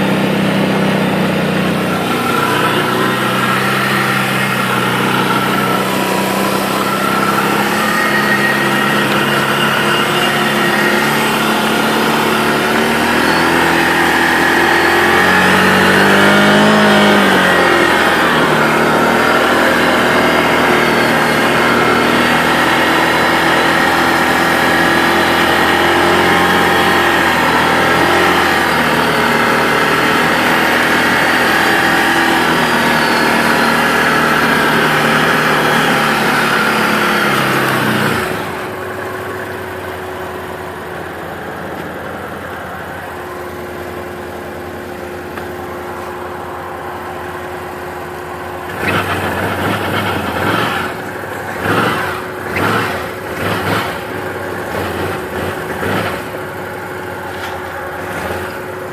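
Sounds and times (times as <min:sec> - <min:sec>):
quad engine running: 0:00.0 - 0:58.9.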